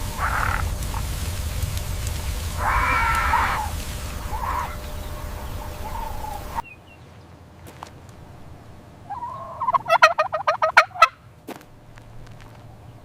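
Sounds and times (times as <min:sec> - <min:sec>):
fowl warbling call: 0:00.0 - 0:06.8, 0:09.0 - 0:11.2.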